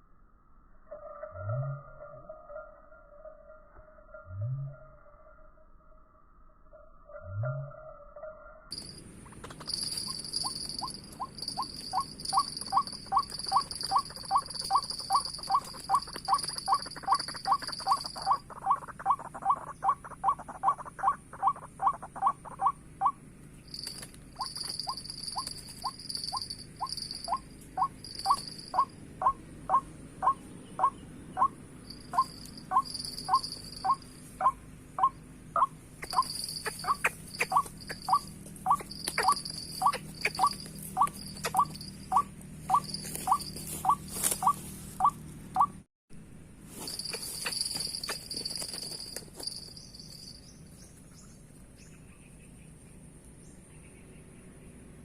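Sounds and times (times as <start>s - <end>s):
insects whining: 8.7s - 45.8s, 46.7s - 55.0s
bird calling short sharp notes: 23.8s - 45.8s.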